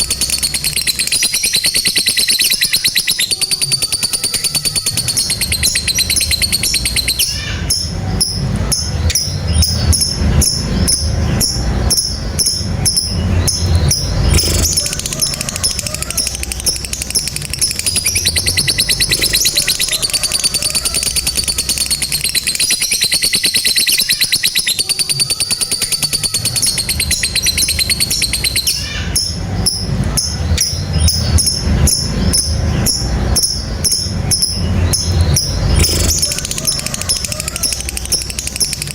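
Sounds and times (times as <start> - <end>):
lovebirds chattering trill: 0.0 - 38.9
low background rumble: 4.9 - 23.3, 26.3 - 38.9.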